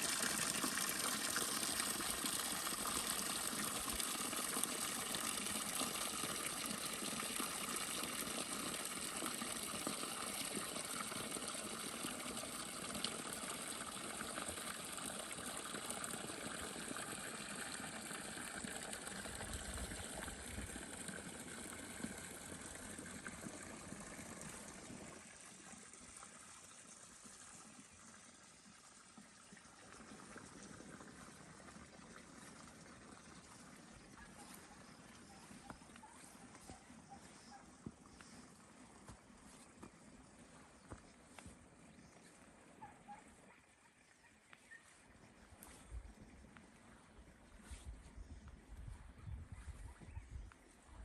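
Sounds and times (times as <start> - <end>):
flowing water rushing: 0.0 - 37.6.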